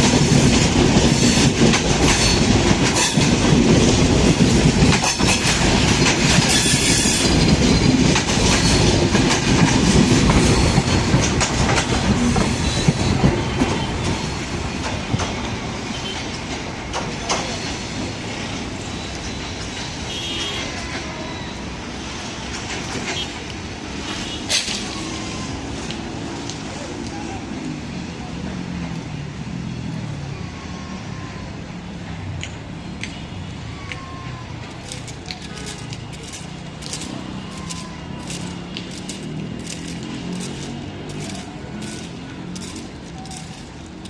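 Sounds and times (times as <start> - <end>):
train wheels clattering over rail joints: 0.0 - 20.0, 22.4 - 23.6, 34.6 - 44.0
wheel on rail squeals: 5.0 - 9.0, 12.1 - 14.7, 17.4 - 22.2, 33.9 - 43.8.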